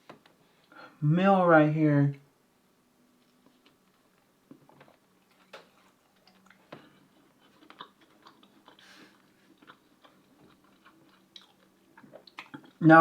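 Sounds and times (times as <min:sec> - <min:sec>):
person chewing food: 0:03.2 - 0:12.8.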